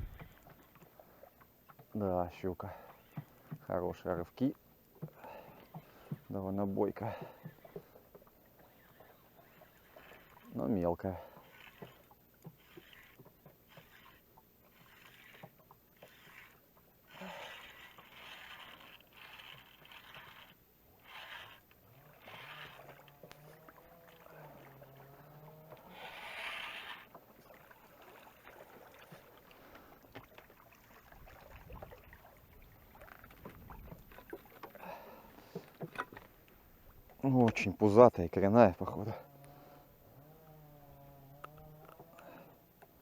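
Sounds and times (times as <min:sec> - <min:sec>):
wind rumble on microphone: 0:00.0 - 0:00.4, 0:31.2 - 0:34.1
rustling and scraping of gear: 0:05.6 - 0:31.5.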